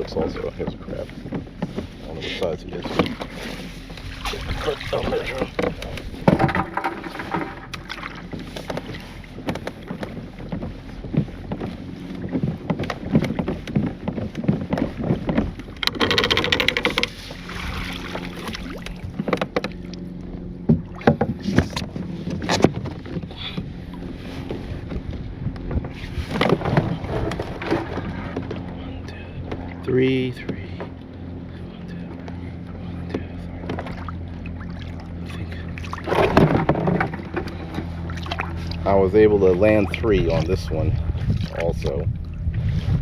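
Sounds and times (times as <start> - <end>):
knocks and clatter on a kayak: 0.0 - 43.0.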